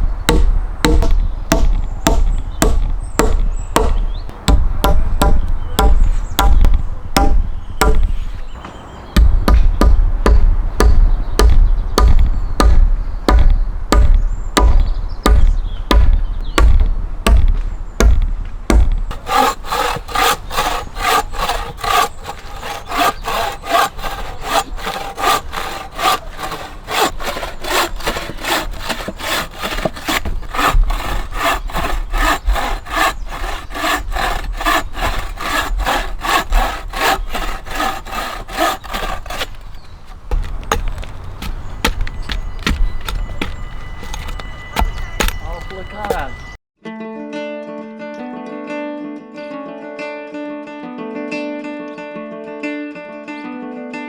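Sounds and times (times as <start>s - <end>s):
heavy knocks on wood: 0.3s - 8.1s, 9.2s - 46.4s
hand saw cutting a log: 19.1s - 46.6s.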